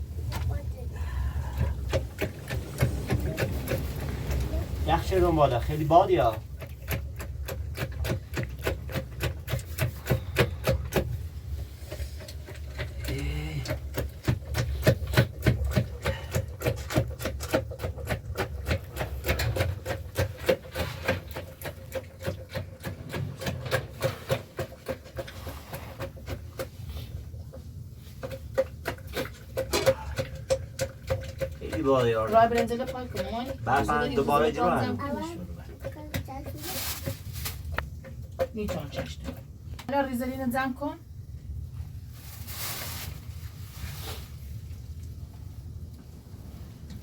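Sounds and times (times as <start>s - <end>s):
rapid knocking and clicking: 1.4s - 11.3s, 11.9s - 26.9s, 27.5s - 34.5s, 35.1s - 40.0s.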